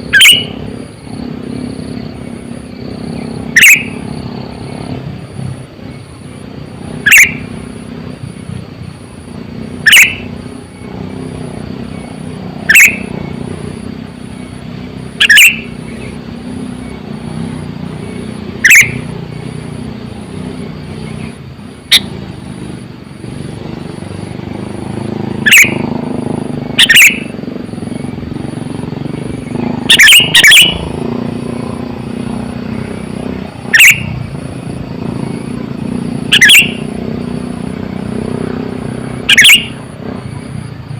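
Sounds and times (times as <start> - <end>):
bulbul short sharp calls: 0.0 - 0.8, 3.1 - 4.8, 6.9 - 7.6, 9.8 - 10.4, 12.6 - 13.5, 15.1 - 16.2, 18.6 - 19.2, 21.0 - 22.2, 25.4 - 25.9, 26.7 - 27.4, 29.4 - 31.0, 33.6 - 34.3, 36.2 - 37.0, 39.2 - 40.0.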